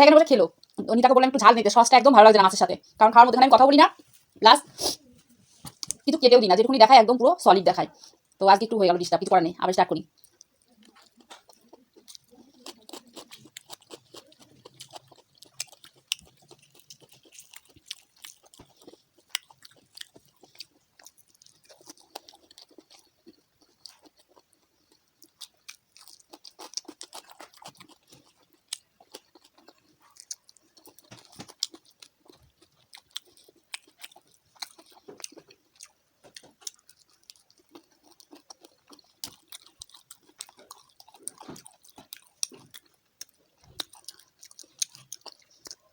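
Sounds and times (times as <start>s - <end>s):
person chewing crunchy food: 7.9s - 8.4s, 10.1s - 45.9s.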